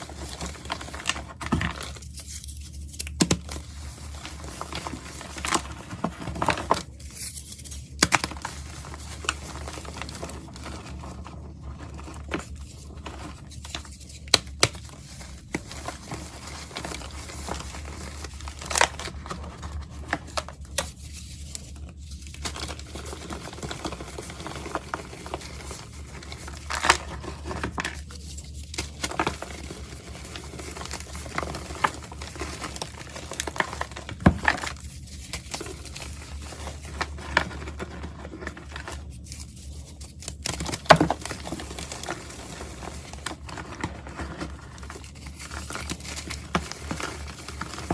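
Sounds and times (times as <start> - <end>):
powder crunching and crackling: 0.0 - 47.9.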